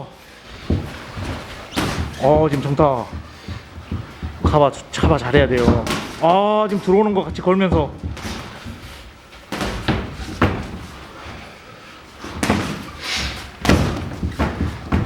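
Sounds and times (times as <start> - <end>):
boxing gloves punching: 0.5 - 15.0.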